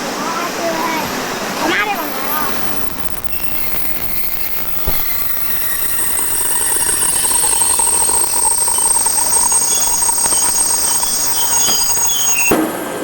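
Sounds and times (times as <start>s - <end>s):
high-pitched whine: 0.0s - 13.0s
train running noise: 0.0s - 13.0s
click: 2.2s - 12.5s.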